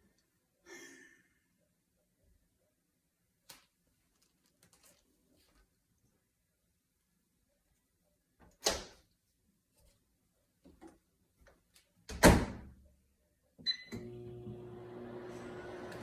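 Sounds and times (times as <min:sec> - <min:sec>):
appliance humming: 0:13.8 - 0:16.0.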